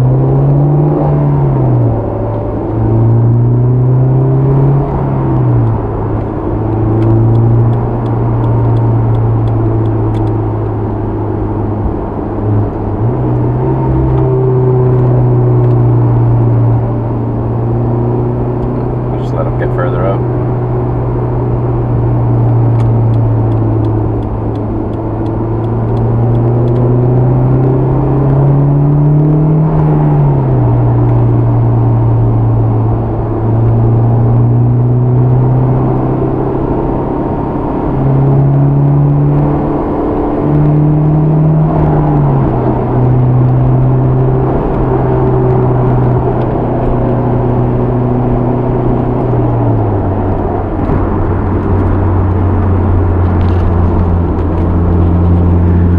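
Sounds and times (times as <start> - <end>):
car engine and exhaust inside cabin: 0.0 - 55.9
road noise: 0.0 - 55.9.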